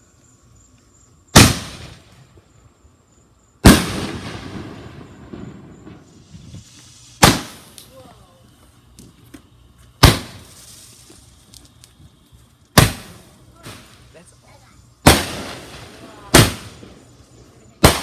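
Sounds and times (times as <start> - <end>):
fireworks bangs: 1.3 - 2.2, 3.6 - 8.6, 10.0 - 11.4, 12.8 - 18.0
rumble after firework: 1.3 - 2.9, 3.5 - 18.0.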